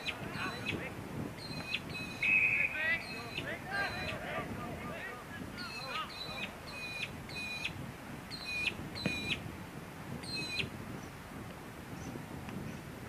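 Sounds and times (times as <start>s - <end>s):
bird calling: 0.0s - 4.4s, 5.6s - 9.4s, 10.2s - 10.7s
steady outdoor haze: 0.0s - 13.0s.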